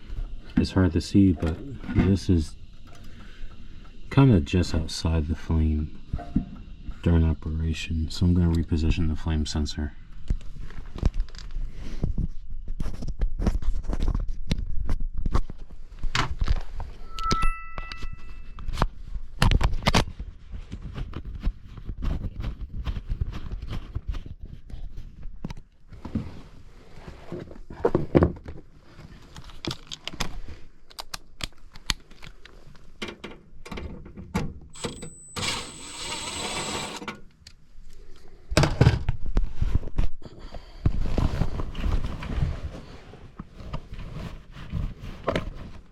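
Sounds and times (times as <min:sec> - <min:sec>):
noisy burst with high whine: 0:00.6 - 0:09.6
short metallic ping: 0:17.0 - 0:18.6.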